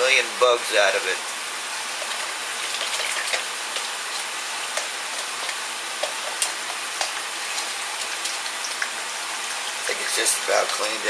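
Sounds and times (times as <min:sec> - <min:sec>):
running water: 0:00.1 - 0:11.0
water splashes and drips: 0:02.0 - 0:03.9.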